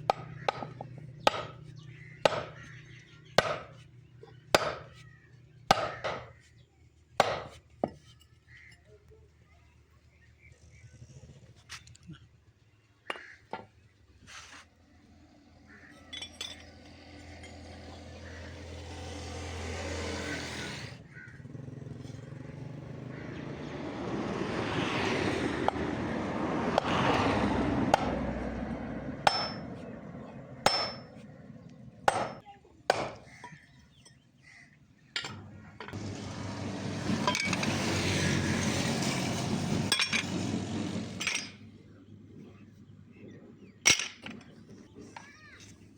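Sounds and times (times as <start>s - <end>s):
sharp metal knocks: 0.0s - 1.6s, 2.2s - 2.6s, 3.4s - 3.8s, 4.6s - 4.9s, 5.7s - 6.3s, 7.2s - 8.0s, 29.2s - 29.8s, 30.6s - 31.2s, 32.0s - 33.6s
rising machine noise: 36.0s - 41.2s.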